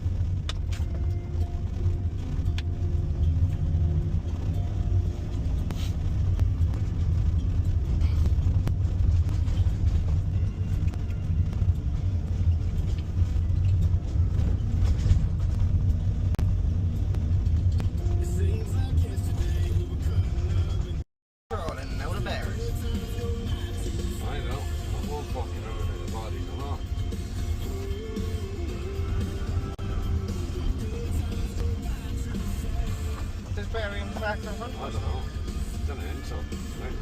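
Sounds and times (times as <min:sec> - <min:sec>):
diesel engine droning: 0:00.0 - 0:37.0
road noise: 0:00.0 - 0:37.0.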